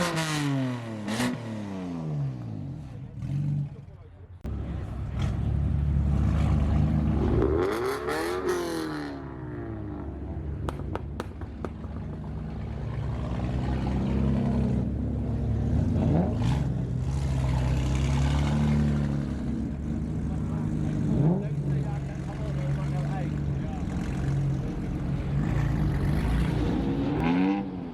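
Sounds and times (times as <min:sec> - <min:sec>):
car engines revving: 0:00.0 - 0:27.9
sharp cracks: 0:10.6 - 0:12.2.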